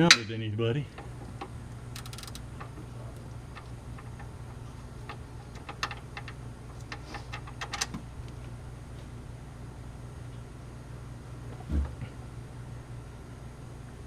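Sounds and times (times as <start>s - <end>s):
steady low hum: 0.0s - 14.0s
socket wrench clicking: 0.9s - 4.4s.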